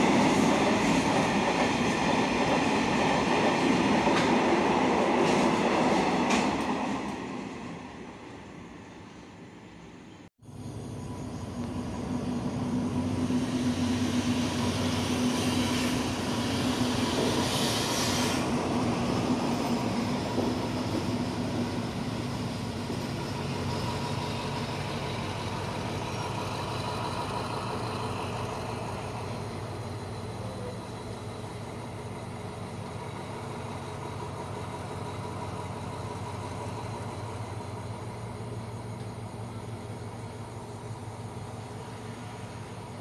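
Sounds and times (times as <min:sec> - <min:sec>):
hiss: 0:10.5 - 0:43.0
locomotive engine rumble: 0:10.5 - 0:43.0.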